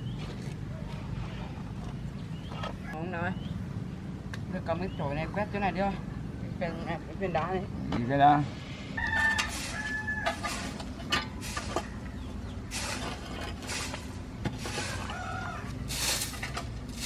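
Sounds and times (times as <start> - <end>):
chickens clucking: 9.0 - 16.2
scratchy noises: 9.1 - 17.0.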